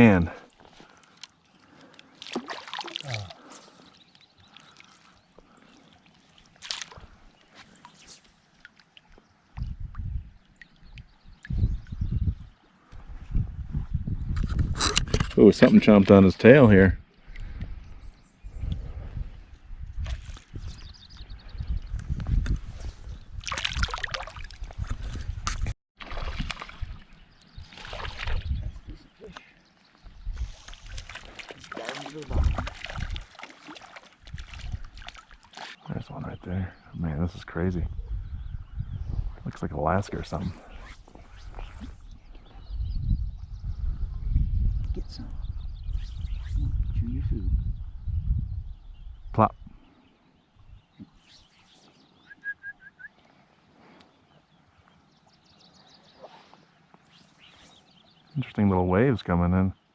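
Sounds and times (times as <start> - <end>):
water splashing and sloshing: 0.0 - 11.6, 23.4 - 35.9
fish splashing in water: 2.2 - 3.5, 30.6 - 35.8.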